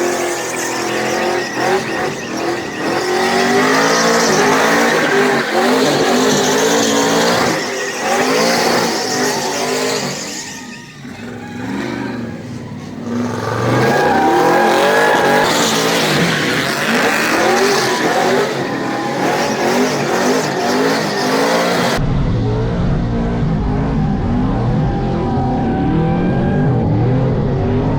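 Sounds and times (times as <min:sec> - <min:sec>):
tires squealing: 0:00.0 - 0:22.0
truck engine revving: 0:00.0 - 0:27.9.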